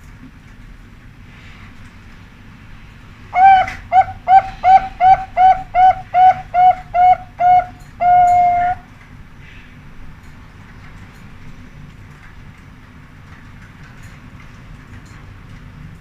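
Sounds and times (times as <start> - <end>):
dove cooing: 3.4 - 8.9.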